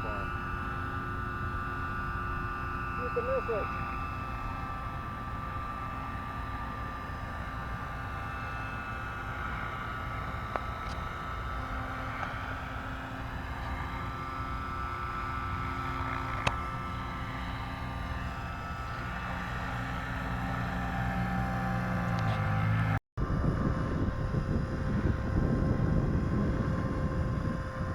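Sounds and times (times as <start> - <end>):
rc helicopter whine: 0.0 - 27.9
wind on microphone: 23.2 - 27.9.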